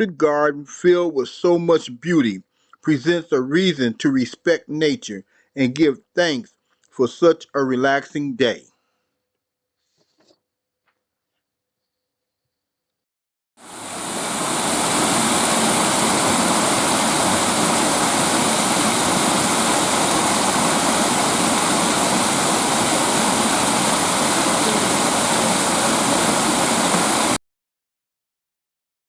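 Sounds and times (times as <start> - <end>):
waterfall splashing: 13.6 - 27.4.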